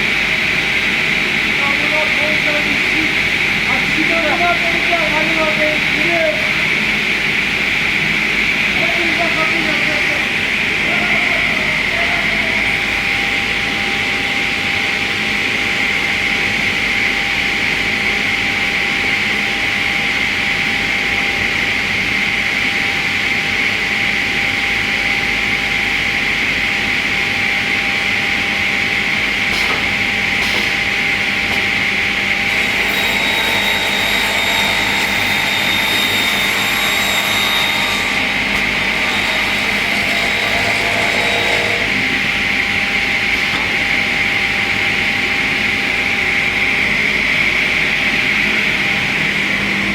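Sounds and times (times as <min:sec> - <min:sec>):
rip saw whine: 0:29.4 - 0:49.9
saw blades ringing through wood: 0:32.3 - 0:42.7.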